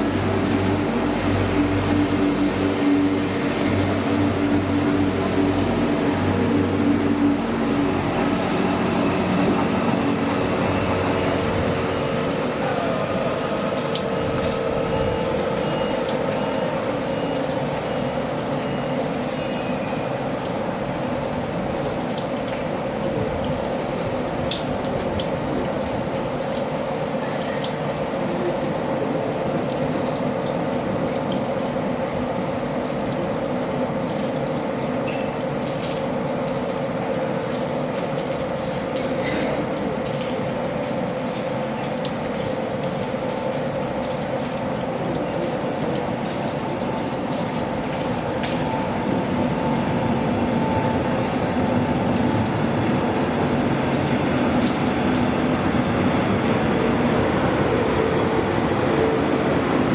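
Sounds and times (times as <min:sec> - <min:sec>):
electric train hum: 0:00.0 - 0:27.2, 0:43.3 - 0:59.9
heavy rain falling: 0:00.0 - 0:59.9.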